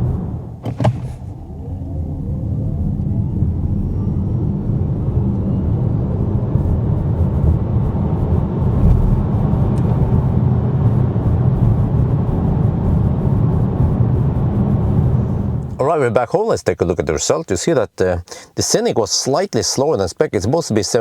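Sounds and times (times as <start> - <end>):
tyre and road noise: 5.9 - 15.8.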